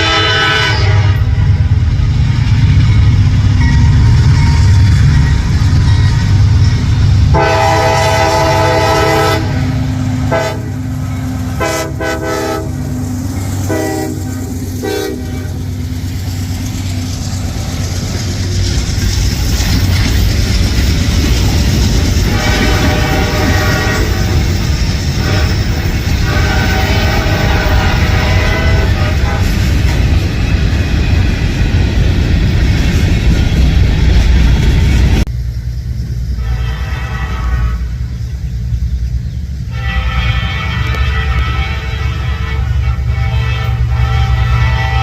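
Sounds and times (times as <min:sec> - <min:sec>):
locomotive horn blasts: 0:00.0 - 0:01.6, 0:07.3 - 0:13.0, 0:13.6 - 0:15.8, 0:22.3 - 0:24.5, 0:25.2 - 0:29.8, 0:36.4 - 0:38.2, 0:39.7 - 0:45.0
locomotive engine rumble: 0:00.0 - 0:45.0.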